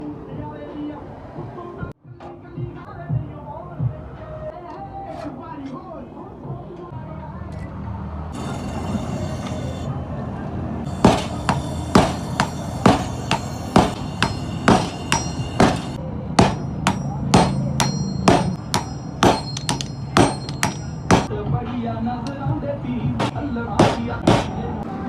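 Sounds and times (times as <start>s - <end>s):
hammer striking steel on anvil: 10.9s - 21.3s, 23.2s - 24.7s.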